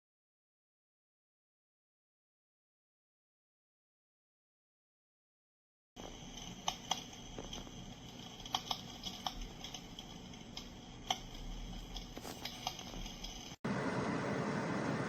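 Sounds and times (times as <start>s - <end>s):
fire crackling sound effect: 6.0s - 15.0s.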